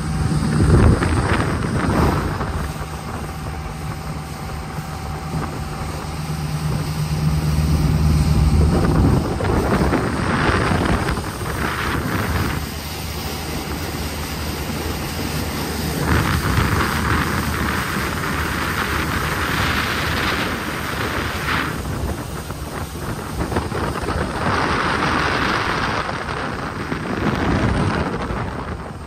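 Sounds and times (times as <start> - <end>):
boat engine drone: 0.0 - 29.0
rushing spray: 0.0 - 29.0
wind buffeting microphone: 0.0 - 29.0.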